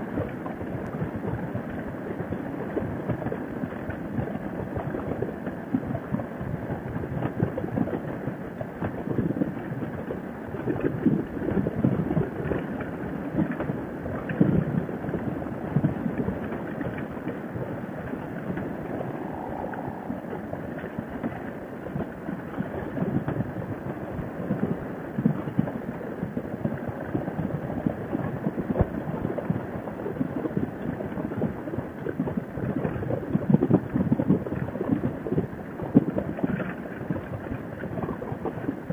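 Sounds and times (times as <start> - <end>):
wind buffeting microphone: 0.0 - 38.9
road noise: 17.8 - 21.6.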